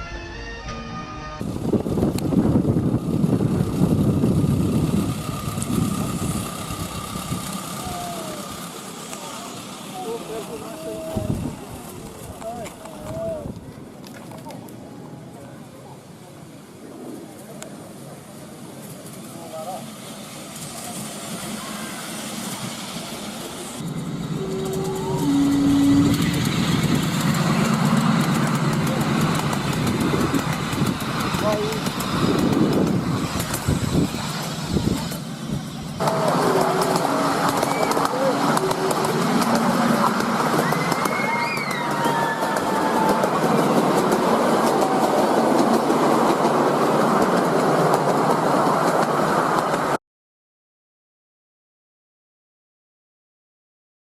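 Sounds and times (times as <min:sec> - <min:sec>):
two-note train signal: 0:00.0 - 0:01.5, 0:23.9 - 0:28.6, 0:36.0 - 0:40.4
train approaching: 0:00.0 - 0:50.0
rail clicks: 0:03.4 - 0:14.8, 0:18.8 - 0:50.0.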